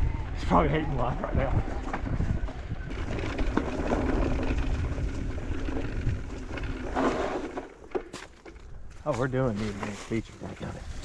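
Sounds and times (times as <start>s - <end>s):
wind on microphone: 0.0s - 7.6s
knobby tyres rolling over dirt: 0.0s - 11.0s
bike rattling: 1.0s - 11.0s.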